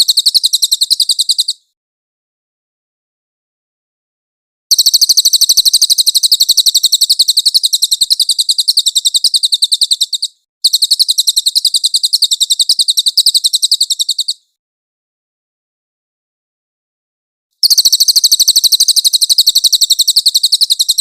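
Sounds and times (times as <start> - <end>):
bird singing high trills: 0.0 - 1.7, 4.7 - 14.5, 17.6 - 21.0.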